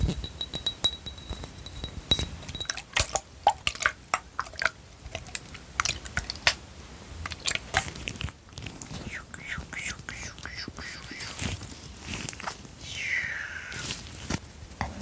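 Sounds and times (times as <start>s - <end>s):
faint high ringing tone: 0.1s - 2.8s.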